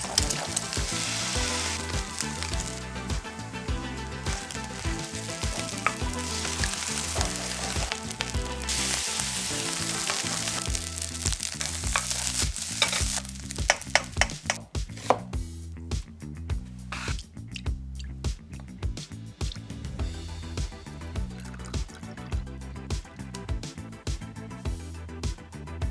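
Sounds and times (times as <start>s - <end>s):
rice sizzling in a pan: 0.0s - 14.6s
music with repeating beat: 0.0s - 14.9s, 19.4s - 25.9s
sharp clicks and knocks: 11.9s - 15.3s.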